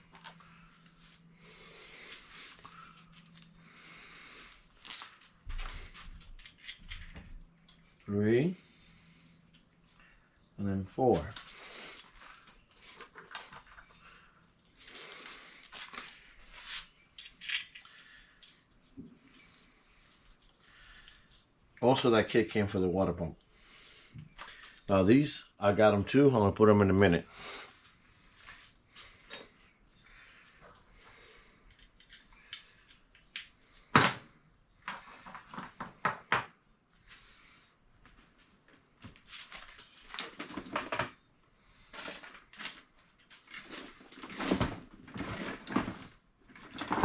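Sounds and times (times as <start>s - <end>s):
tools and engine parts clinking: 0.0s - 0.8s, 12.8s - 14.0s, 28.7s - 29.9s, 31.6s - 35.7s, 39.6s - 41.2s
metal parts scraping and clicking: 31.7s - 33.4s.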